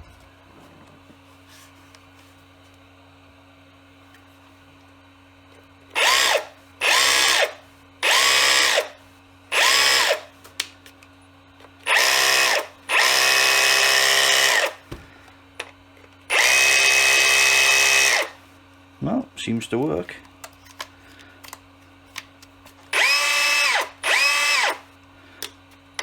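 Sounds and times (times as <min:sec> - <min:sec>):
hammer drill motor spinning up: 0:05.9 - 0:10.3, 0:11.8 - 0:14.8, 0:16.3 - 0:18.4, 0:22.8 - 0:25.0.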